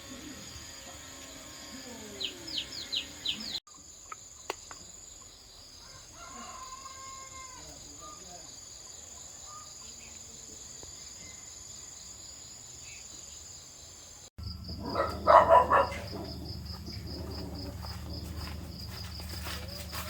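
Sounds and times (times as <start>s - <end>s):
insects trilling: 0.0s - 20.0s
low hum: 14.4s - 19.8s.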